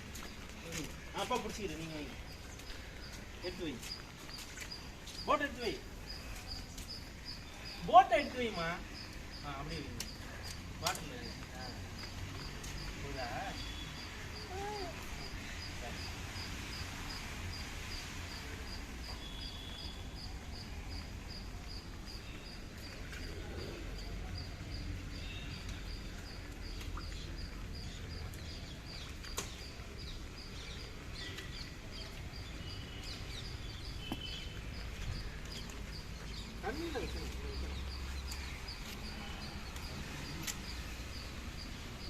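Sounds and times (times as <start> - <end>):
rain hiss: 0.0 - 31.6, 32.3 - 42.0
faint scattered clicks: 9.1 - 13.0, 28.2 - 29.7, 39.7 - 40.8.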